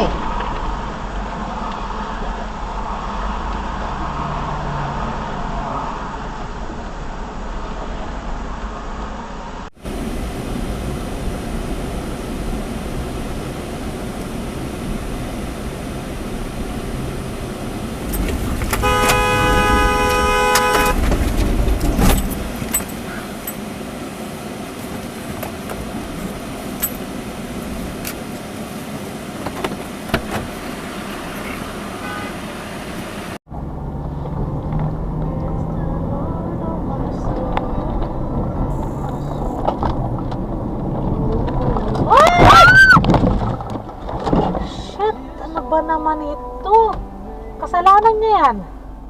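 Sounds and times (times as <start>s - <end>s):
road and engine noise: 0.0s - 49.0s
car horn blast: 18.1s - 21.1s, 31.3s - 32.8s.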